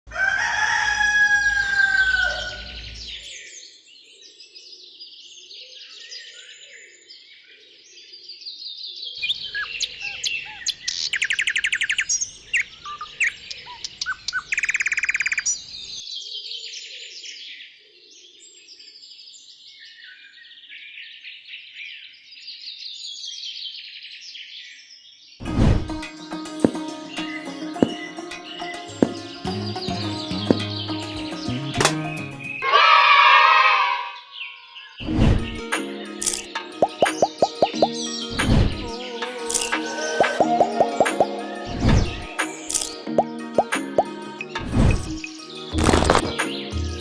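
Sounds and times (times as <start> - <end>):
songbirds chirping and trilling: 0.2 - 25.4, 26.2 - 47.0.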